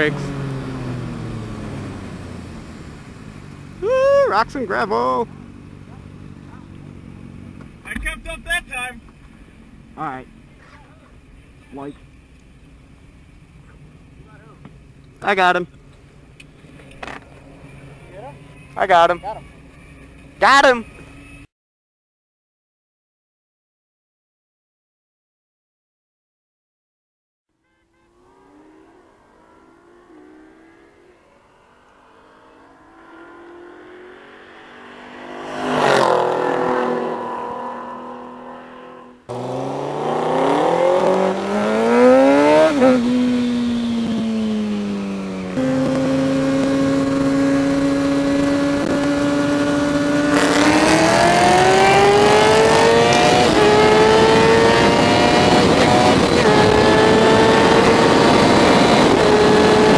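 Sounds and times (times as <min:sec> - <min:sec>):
motorcycle accelerating through gears: 0:00.0 - 0:03.9, 0:28.2 - 0:59.9
racing cars passing: 0:27.9 - 0:59.9.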